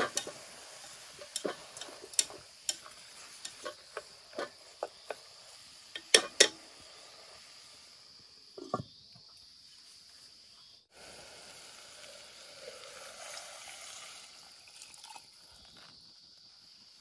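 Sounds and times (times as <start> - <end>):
utensil stirring food in a pan: 0.0 - 6.8
faint steady hiss: 0.0 - 17.0.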